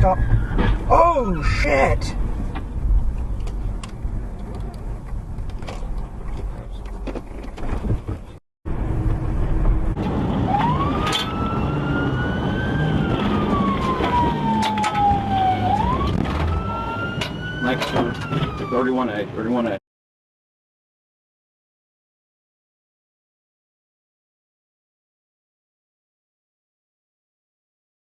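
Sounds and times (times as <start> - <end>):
emergency vehicle siren wailing: 0.0 - 1.0, 9.9 - 19.8
vehicle noise: 0.0 - 19.8.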